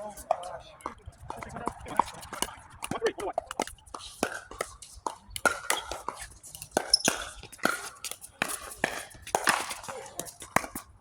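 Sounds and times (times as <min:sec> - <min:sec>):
faint voices murmuring: 0:00.0 - 0:04.1
ball bouncing: 0:00.2 - 0:10.9
paddles hitting plastic ball: 0:01.3 - 0:10.9.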